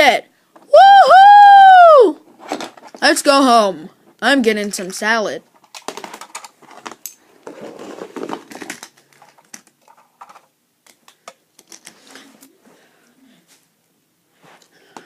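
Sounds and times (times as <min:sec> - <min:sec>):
plastic toy trucks clicking: 0:05.6 - 0:07.2, 0:08.1 - 0:12.0
soft rustle: 0:11.8 - 0:15.0.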